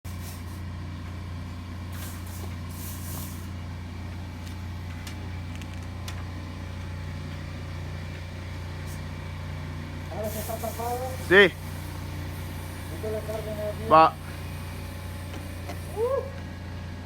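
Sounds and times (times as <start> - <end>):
motor droning: 0.4 - 17.0
hissing bursts: 1.9 - 3.6, 10.1 - 16.4.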